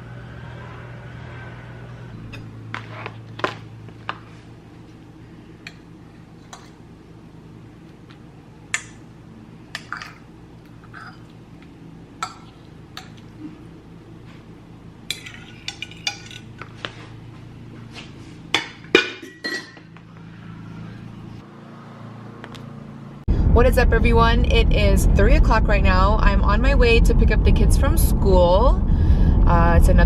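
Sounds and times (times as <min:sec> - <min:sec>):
low hum: 0:00.0 - 0:30.0
mug and spoon clinking: 0:15.1 - 0:16.5, 0:18.6 - 0:19.9.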